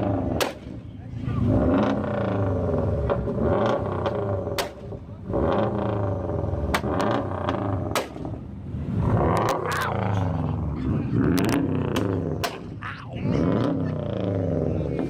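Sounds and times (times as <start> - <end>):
car engines revving: 0.0 - 15.0
exhaust pops: 1.4 - 8.4, 11.2 - 12.8.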